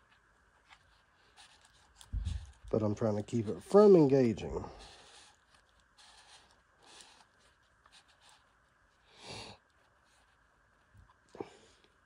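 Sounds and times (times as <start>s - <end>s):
trimmer line scratching and rustling: 0.0s - 10.4s.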